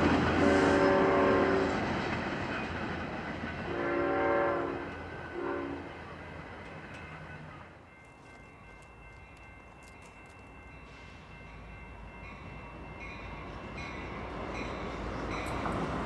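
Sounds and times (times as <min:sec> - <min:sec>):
rumble of moving train: 0:00.0 - 0:16.0
train air horn blasts: 0:00.3 - 0:01.8, 0:03.7 - 0:05.9.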